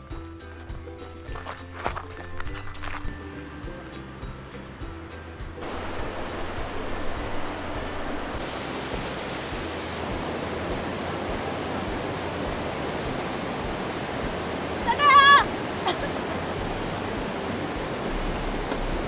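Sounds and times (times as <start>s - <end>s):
waterfall rushing: 5.6s - 19.0s.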